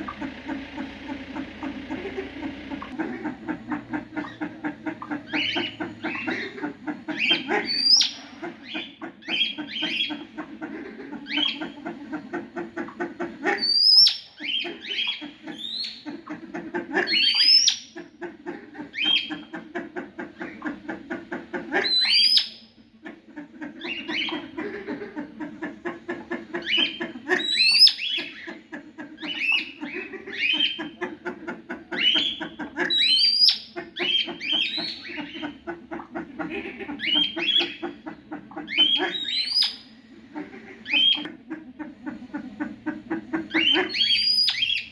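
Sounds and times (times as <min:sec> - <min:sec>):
sharp rising bird calls: 0:00.0 - 0:10.1, 0:38.6 - 0:40.1, 0:43.5 - 0:44.9
birds chattering: 0:00.0 - 0:44.9.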